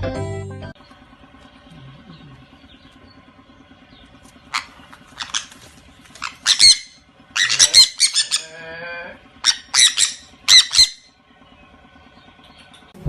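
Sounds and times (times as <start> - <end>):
faint steady hum: 0.7 - 13.0
bird squawking: 3.9 - 11.6.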